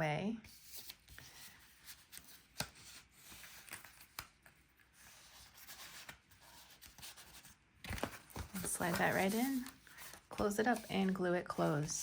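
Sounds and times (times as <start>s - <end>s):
paper rustling as folded: 0.5s - 12.0s.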